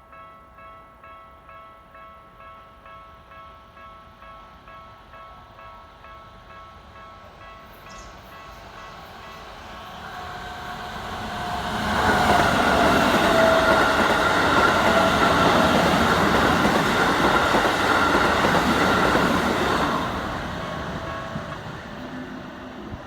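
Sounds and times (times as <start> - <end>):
train wheels clattering: 11.2 - 22.3
level crossing warning bell: 11.3 - 22.7.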